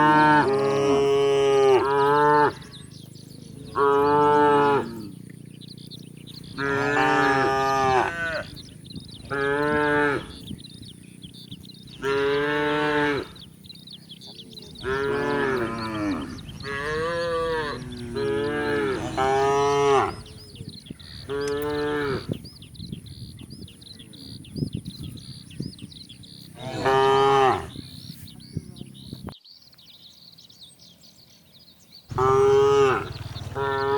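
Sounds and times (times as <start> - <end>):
cattle mooing: 0.0 - 2.8, 3.6 - 5.2, 6.4 - 8.6, 9.2 - 10.4, 12.0 - 13.4, 14.8 - 20.3, 21.0 - 22.4, 26.6 - 27.8, 32.1 - 33.9.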